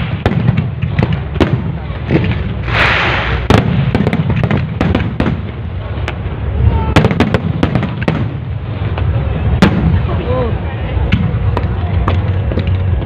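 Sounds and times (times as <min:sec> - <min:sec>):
hissing crackling firework burst: 0:00.0 - 0:10.6
continuous deep rumble: 0:00.0 - 0:13.0
fireworks bangs and cracks: 0:00.0 - 0:13.0.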